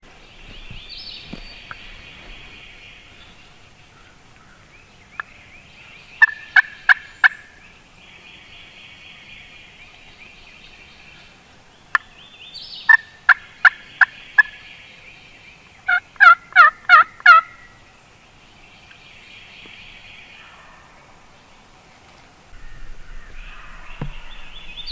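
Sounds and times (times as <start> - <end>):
turkey yelping: 6.2 - 7.5, 12.9 - 14.6, 15.9 - 17.8.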